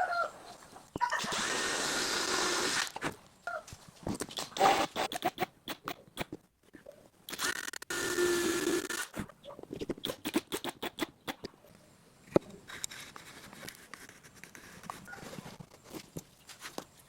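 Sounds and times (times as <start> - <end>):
power drill running: 7.3 - 9.1
tools and wood scraping and knocking: 12.3 - 17.0.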